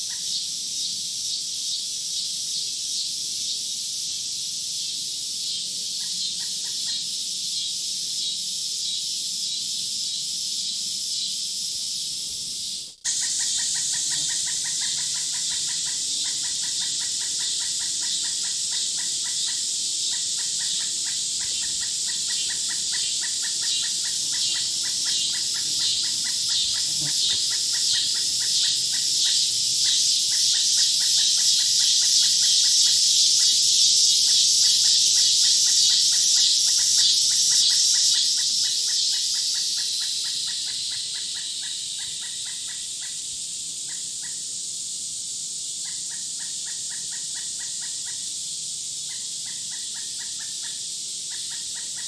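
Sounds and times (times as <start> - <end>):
high-pitched insect chorus: 0.0 - 52.0
rapid pulsing insect call: 0.0 - 52.0.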